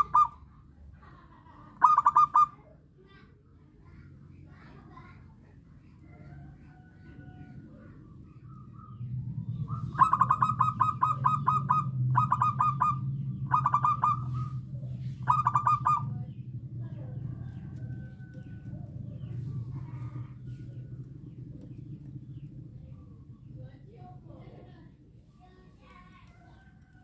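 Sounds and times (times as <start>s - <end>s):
dove cooing: 0.0s - 0.5s, 1.8s - 2.6s, 8.5s - 23.5s
steady low hum: 0.0s - 27.0s.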